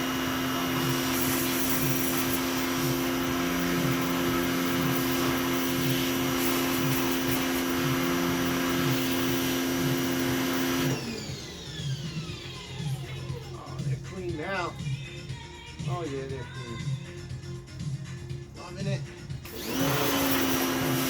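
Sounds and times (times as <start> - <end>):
pressure washer spray hissing: 0.0 - 11.0
pressure washer motor humming: 0.0 - 15.0, 19.2 - 21.0.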